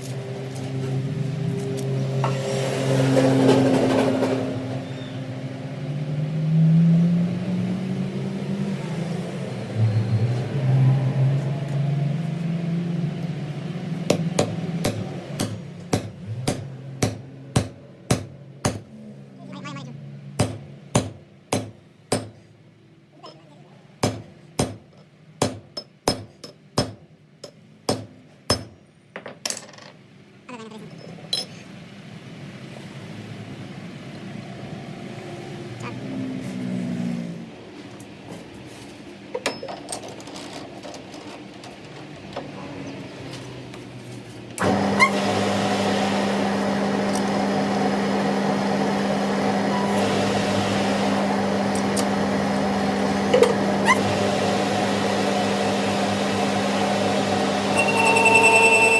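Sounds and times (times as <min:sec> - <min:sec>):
engine revving: 0:00.0 - 0:17.6, 0:34.1 - 0:37.8, 0:42.7 - 0:58.9
machine running: 0:44.6 - 0:58.9.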